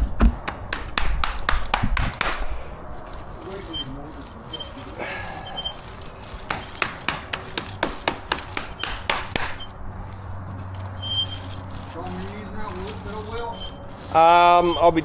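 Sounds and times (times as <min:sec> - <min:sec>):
tool knocking on concrete: 0:06.5 - 0:09.7.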